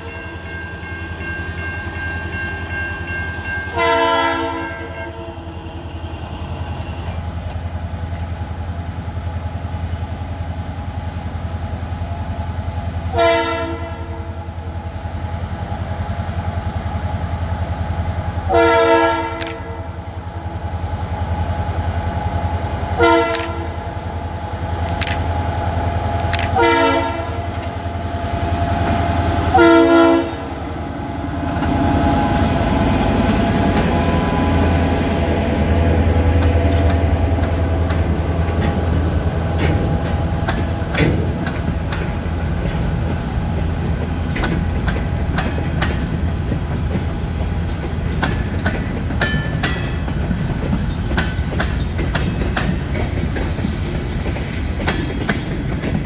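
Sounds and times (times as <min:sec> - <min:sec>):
diesel locomotive engine running: 0:00.0 - 0:56.0
locomotive horn blasts: 0:03.7 - 0:07.4, 0:13.1 - 0:14.3, 0:18.5 - 0:19.9, 0:23.0 - 0:23.8, 0:26.4 - 0:27.5, 0:29.5 - 0:30.5
freight cars rumbling and clicking: 0:05.9 - 0:13.2, 0:15.1 - 0:56.0.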